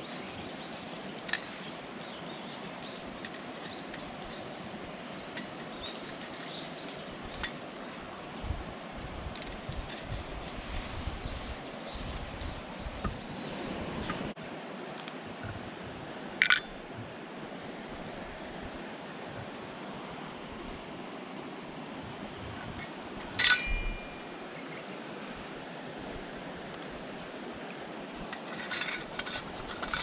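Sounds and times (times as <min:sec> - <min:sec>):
sharp clinks: 0:23.4 - 0:24.3.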